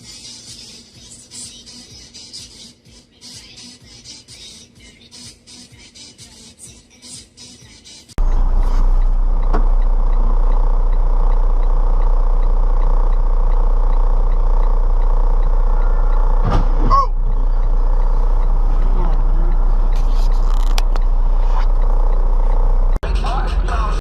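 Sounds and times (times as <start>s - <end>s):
car road and engine noise: 8.2s - 23.9s.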